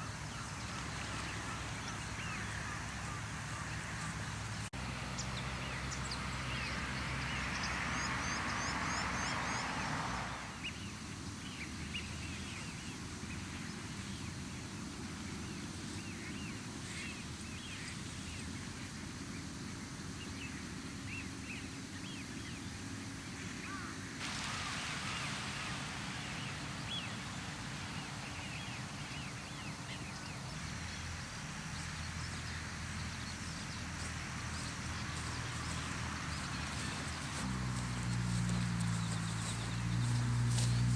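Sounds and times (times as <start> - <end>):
steady rushing noise: 24.2 - 40.9.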